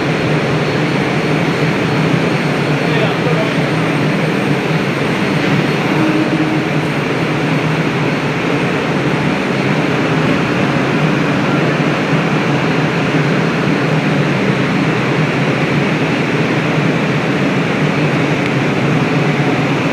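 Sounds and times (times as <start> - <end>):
train rumble and hiss: 0.0 - 19.9.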